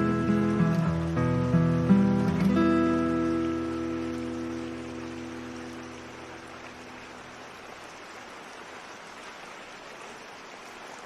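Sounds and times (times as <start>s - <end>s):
acoustic guitar chord ringing: 0.0s - 6.4s
steady rain hiss: 0.0s - 11.0s.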